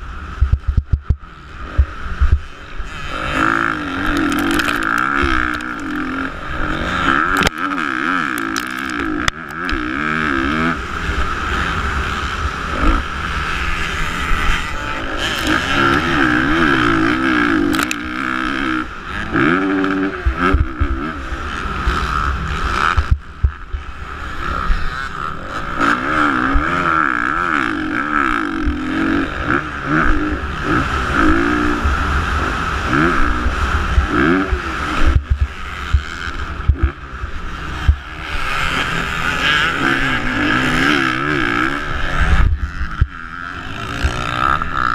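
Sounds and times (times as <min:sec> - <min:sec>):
wind rumble on microphone: 0:00.0 - 0:07.6, 0:20.0 - 0:25.8, 0:28.0 - 0:44.9
motocross engines revving: 0:00.0 - 0:44.9.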